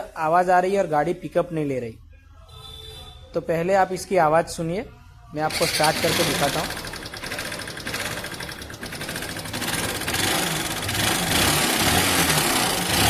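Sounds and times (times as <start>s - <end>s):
motorcycle engine running with mechanical noise: 5.5s - 13.0s.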